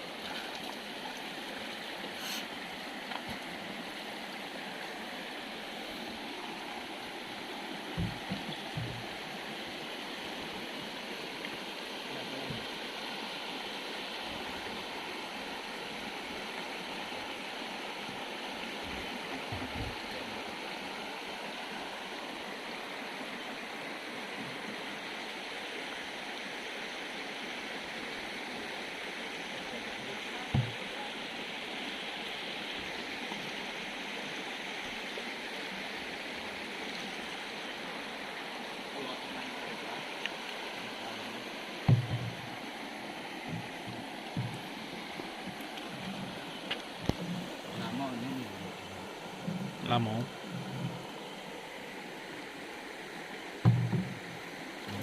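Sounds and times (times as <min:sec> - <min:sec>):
river water rushing: 0:00.0 - 0:55.0
low thumps: 0:08.0 - 0:09.1, 0:41.9 - 0:42.5, 0:53.7 - 0:54.2.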